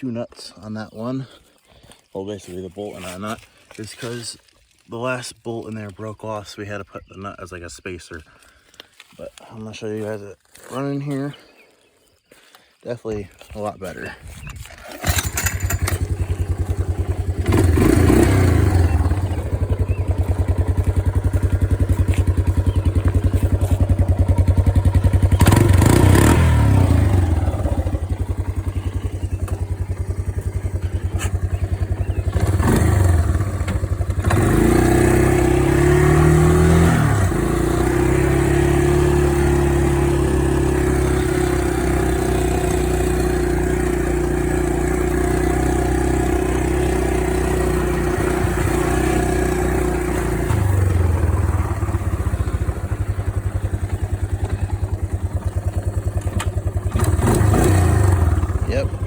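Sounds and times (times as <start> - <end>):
engine starting and revving: 14.5 - 59.0
engine idling: 14.9 - 59.0.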